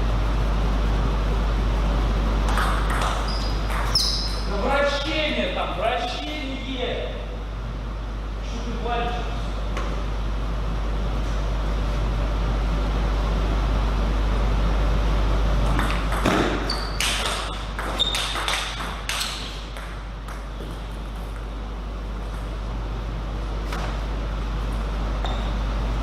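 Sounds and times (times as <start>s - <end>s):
steady low hum: 0.0s - 26.0s
table tennis ball hits: 2.5s - 4.4s, 15.6s - 21.5s.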